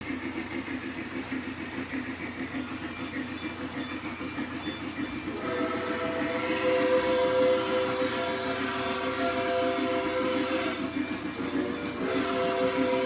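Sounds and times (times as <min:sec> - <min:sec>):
model steam locomotive chuffing: 0:00.0 - 0:13.0
steam whistle chord: 0:05.3 - 0:13.0.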